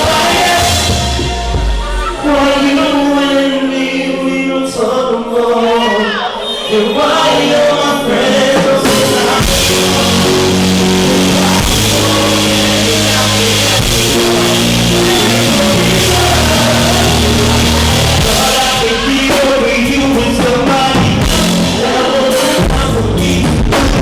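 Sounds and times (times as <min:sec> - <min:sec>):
live band with bass and drums: 0:00.0 - 0:03.0, 0:08.4 - 0:24.0
person singing: 0:00.0 - 0:24.0.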